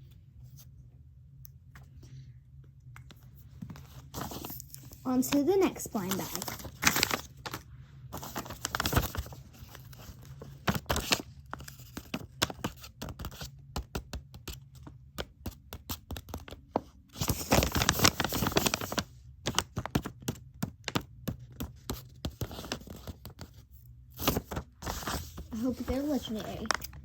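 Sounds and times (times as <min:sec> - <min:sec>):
packaging crinkling and tearing: 0:04.2 - 0:07.6, 0:08.2 - 0:12.2, 0:17.2 - 0:20.1, 0:24.2 - 0:27.0.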